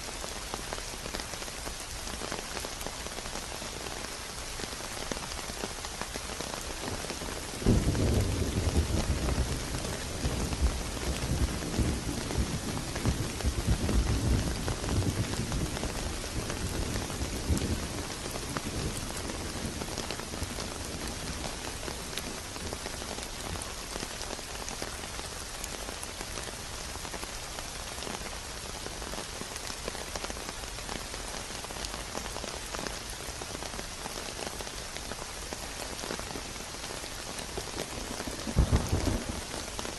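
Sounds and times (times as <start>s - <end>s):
steady rain falling: 0.0s - 39.9s
thunder rumbling: 7.6s - 21.4s, 38.4s - 39.7s.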